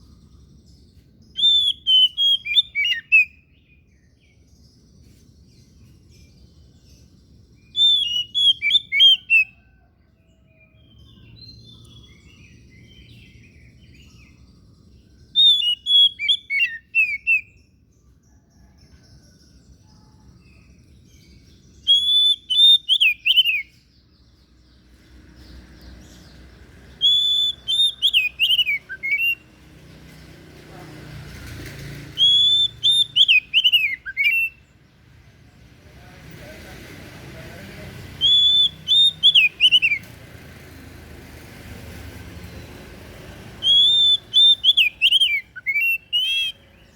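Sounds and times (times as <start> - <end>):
bird singing whistled notes: 0.0 - 9.8, 10.5 - 18.7, 19.6 - 24.8, 25.4 - 29.6, 32.0 - 35.0, 38.1 - 40.1, 43.4 - 46.9.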